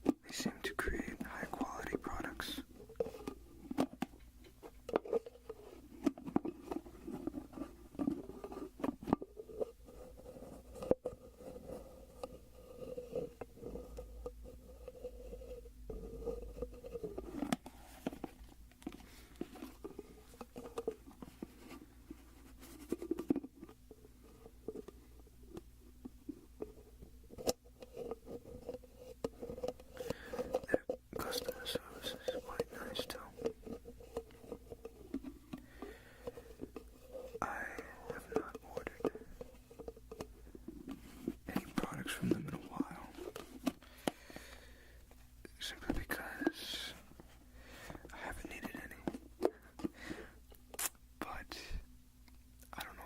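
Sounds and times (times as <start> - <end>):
soft wavering rubbing: 4.6 - 25.6.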